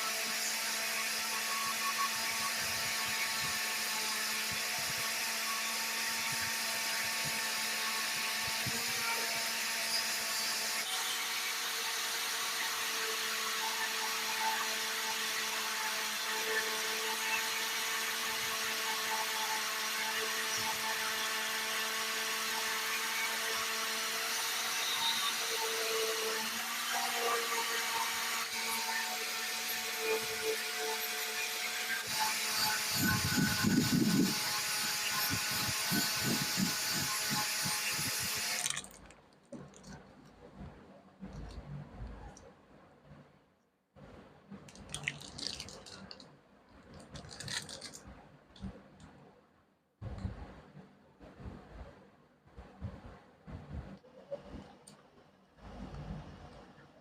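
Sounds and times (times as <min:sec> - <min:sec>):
electric power tool running: 0:00.0 - 0:38.9.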